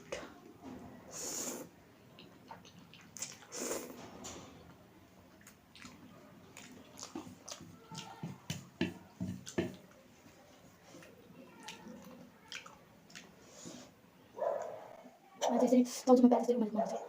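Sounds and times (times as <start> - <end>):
chewing with smacks and clicks: 2.2 - 4.0, 5.3 - 13.6
noodle slurp: 2.5 - 4.0.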